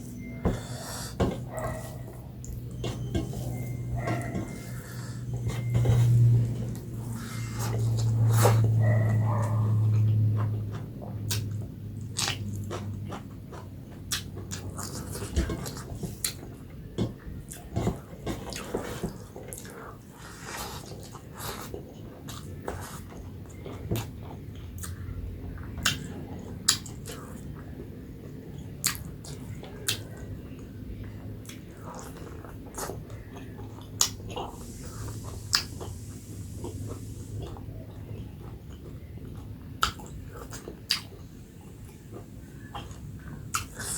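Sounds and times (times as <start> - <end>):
chewing: 0.6 - 43.9
wet mouth clicks and smacks: 11.3 - 11.6, 39.8 - 41.1.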